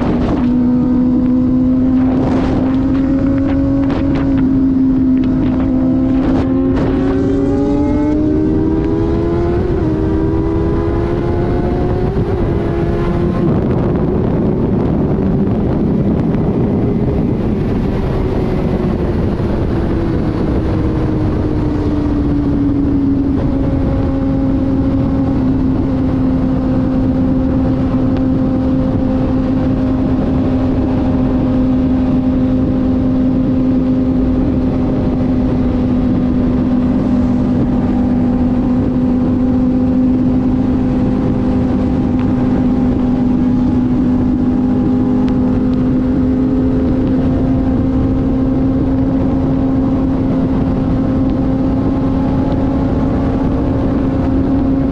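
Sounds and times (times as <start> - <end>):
motorcycle engine cruising: 0.0 - 54.9
wind rushing on microphone: 0.0 - 54.9.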